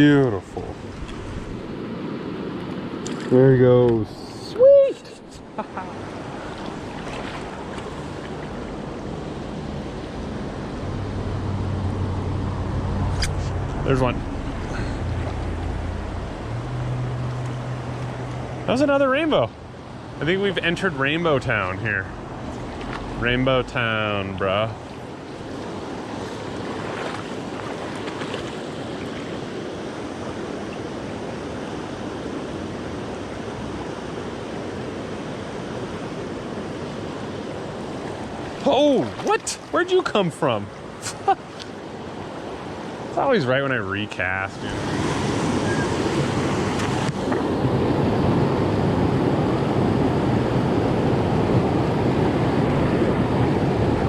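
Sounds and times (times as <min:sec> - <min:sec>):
creek water rushing over rocks: 0:05.8 - 0:11.2, 0:24.0 - 0:32.8, 0:36.8 - 0:43.2
low rumble: 0:09.5 - 0:18.6, 0:22.0 - 0:25.1.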